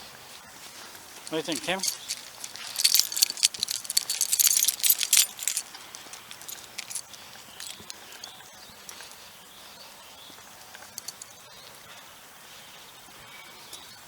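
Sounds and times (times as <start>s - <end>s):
small hard objects jangling: 1.2s - 8.4s, 11.0s - 11.2s.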